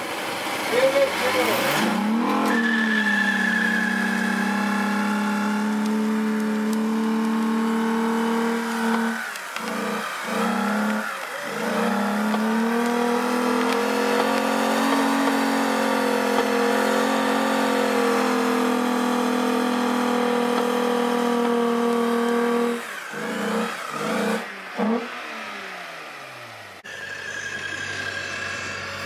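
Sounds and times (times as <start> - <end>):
car engine revving high: 0.4 - 29.0.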